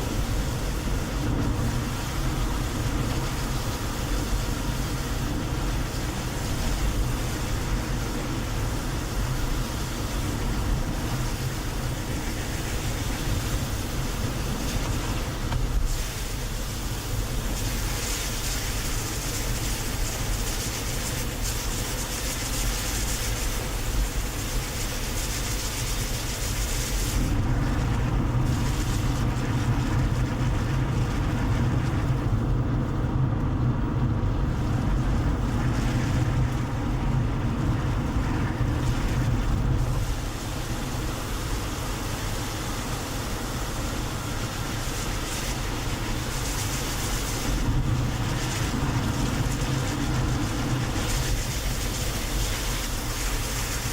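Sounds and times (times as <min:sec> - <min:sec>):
car road and engine noise: 0:00.0 - 0:53.9.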